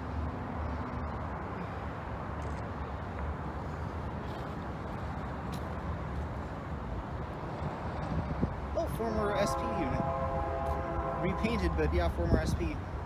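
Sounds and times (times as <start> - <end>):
freight train rumbling: 6.8 - 13.0.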